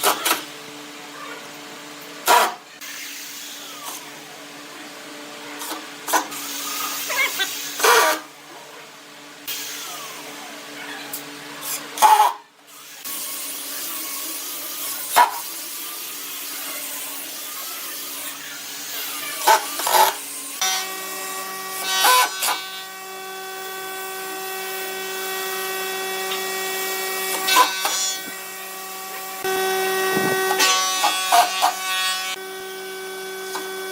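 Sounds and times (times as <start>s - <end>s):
power tool motor whining: 9.5s - 33.9s.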